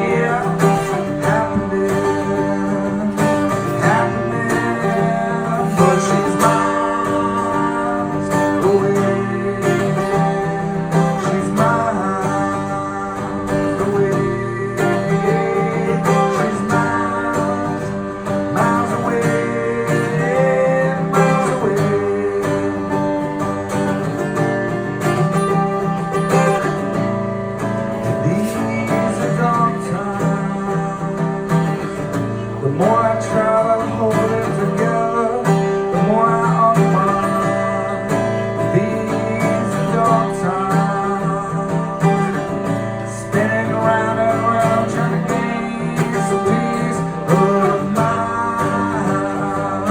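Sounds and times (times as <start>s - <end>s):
acoustic guitar strumming: 0.0s - 49.9s.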